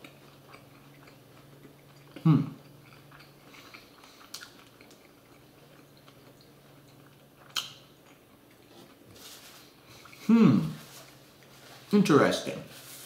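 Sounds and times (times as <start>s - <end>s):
close-up chewing: 0.0s - 11.9s
wet mouth clicks: 7.5s - 7.8s.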